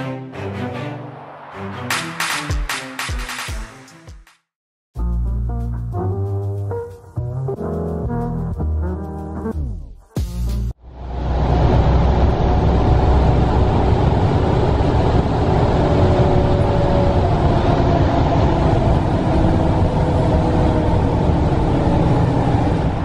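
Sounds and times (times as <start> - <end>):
moving train rumble: 0.0 - 3.7, 10.8 - 23.0.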